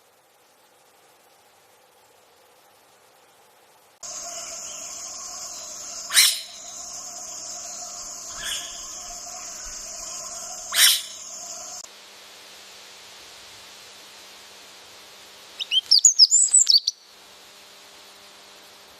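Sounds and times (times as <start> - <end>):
short sharp insect calls: 0.0 - 11.8, 15.5 - 18.9
faint hiss: 0.0 - 18.9
high-pitched insect drone: 4.0 - 11.8.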